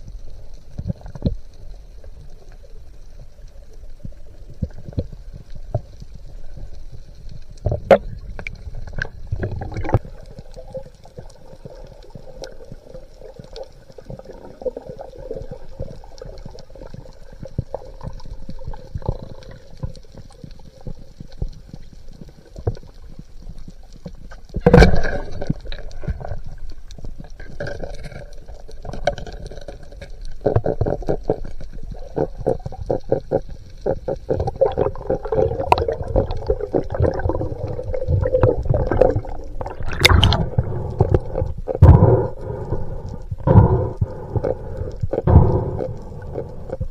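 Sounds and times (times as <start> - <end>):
underwater crackling and clicking: 0.0 - 46.9.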